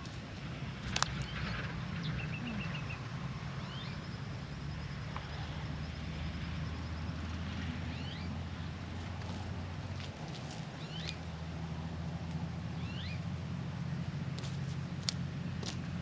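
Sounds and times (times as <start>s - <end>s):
steady low hum: 0.0s - 16.0s
birds chirping: 0.8s - 4.2s, 7.8s - 9.2s, 9.9s - 11.3s, 12.7s - 13.3s.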